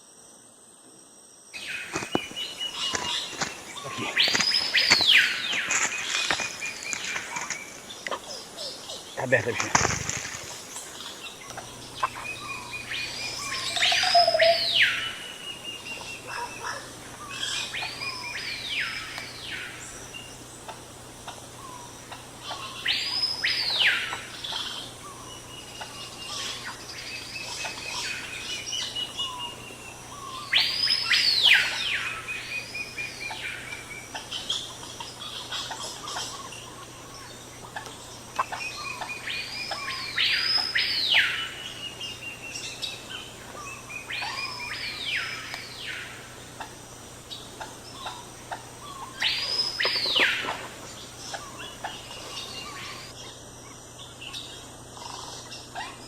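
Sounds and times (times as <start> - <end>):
bird whistling song: 1.6 - 9.1, 11.4 - 19.8, 21.6 - 34.6, 38.4 - 46.1, 48.8 - 50.6
bird trill: 1.6 - 20.0, 21.6 - 53.4.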